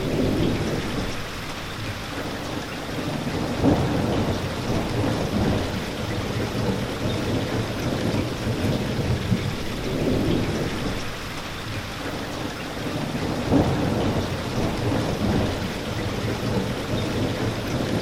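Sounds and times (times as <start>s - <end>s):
steady rain falling: 0.0s - 18.0s
low rolling thunder: 3.1s - 11.3s, 13.0s - 18.0s.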